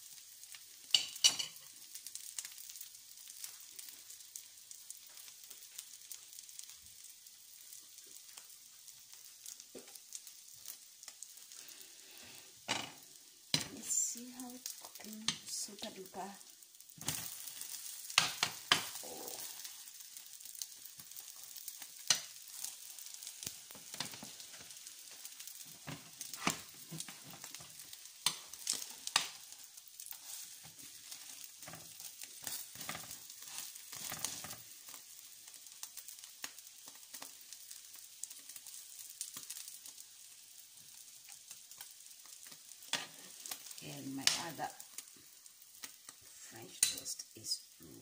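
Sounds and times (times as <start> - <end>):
bread sizzling in oil: 0.0 - 48.0
fork tapping and scraping pan: 0.9 - 1.6, 46.8 - 47.0.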